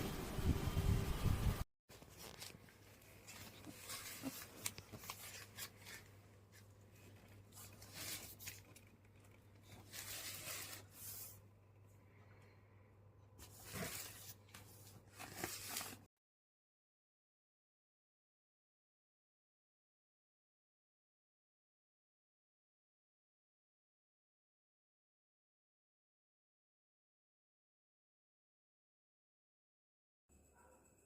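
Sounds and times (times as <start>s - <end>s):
faint rustling and tearing: 1.9s - 11.4s, 13.4s - 16.1s.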